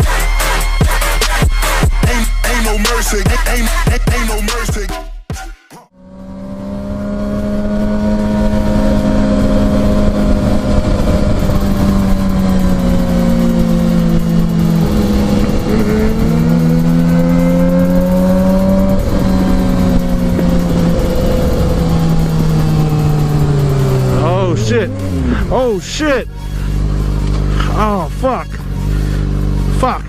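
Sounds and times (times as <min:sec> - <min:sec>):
motorcycle engine running at speed: 0:05.9 - 0:30.0
wind noise: 0:06.7 - 0:24.3.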